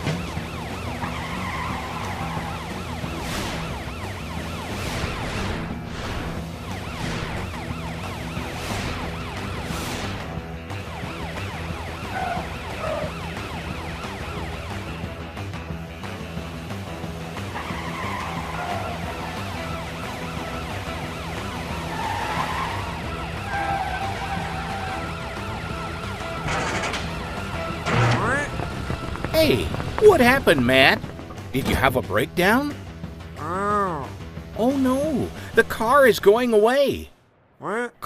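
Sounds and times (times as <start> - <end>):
warbling siren: 0.0 - 15.2, 17.6 - 29.3
background music: 0.0 - 37.1
cartoon siren wailing: 11.0 - 14.8.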